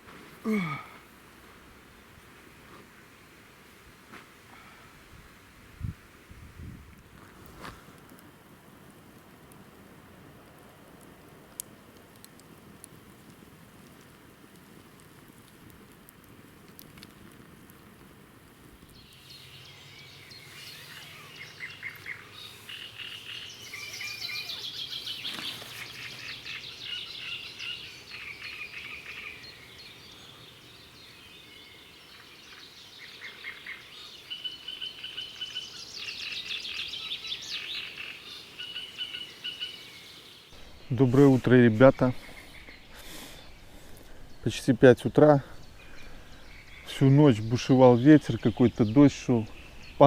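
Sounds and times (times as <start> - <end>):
songbirds singing: 18.9 - 50.0.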